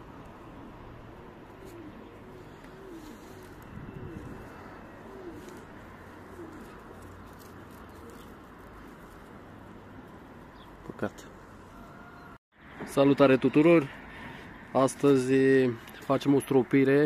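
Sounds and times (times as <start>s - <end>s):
bird cooing: 0.4s - 10.7s.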